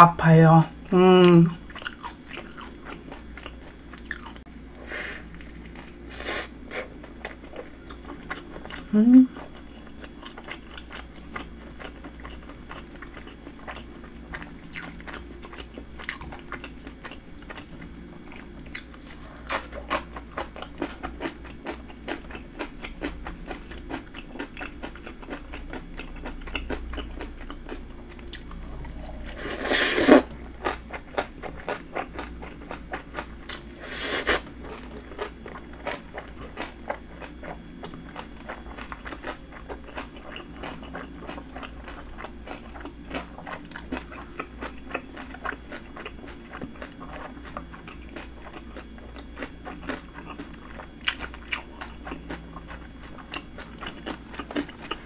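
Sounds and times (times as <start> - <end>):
crunching fried shrimp: 1.4 - 4.4, 5.0 - 55.0.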